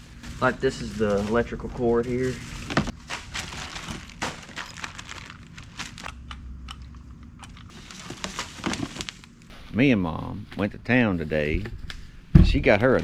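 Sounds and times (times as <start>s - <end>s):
plastic and cardboard crinkling: 0.0s - 6.4s, 7.4s - 9.4s.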